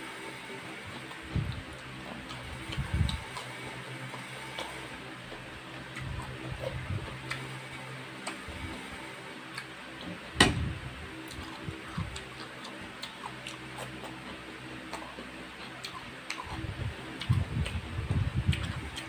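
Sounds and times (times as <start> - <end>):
low hum: 0.0 - 19.0
wet chewing mouth sounds: 0.9 - 7.5, 11.2 - 19.0.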